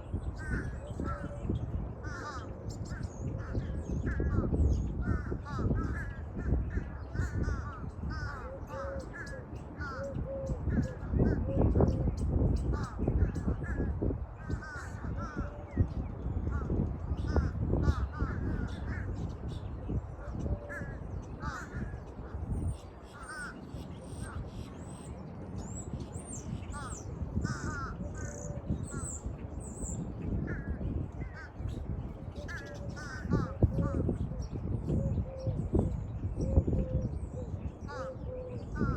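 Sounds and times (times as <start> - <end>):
low wind rumble on microphone: 0.0 - 38.9
small birds chirping and trilling: 0.0 - 38.9
crows cawing: 0.4 - 1.4, 2.0 - 11.4, 12.7 - 15.8, 16.4 - 19.6, 20.2 - 24.7, 26.7 - 29.3, 30.4 - 31.8, 32.4 - 34.2, 37.8 - 38.9.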